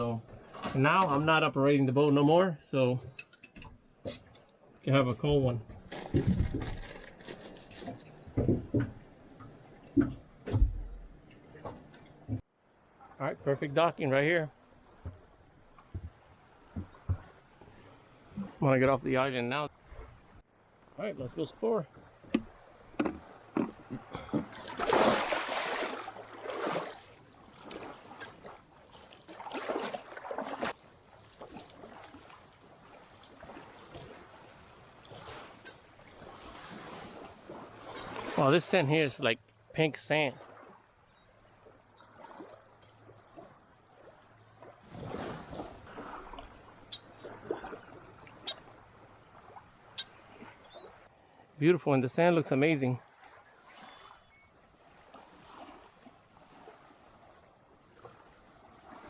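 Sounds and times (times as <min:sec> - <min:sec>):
water splashing and sloshing: 0:00.0 - 0:51.6, 0:52.2 - 0:59.0
small waves washing on sand: 0:24.7 - 0:38.6, 0:41.6 - 0:51.0, 0:53.6 - 0:59.0.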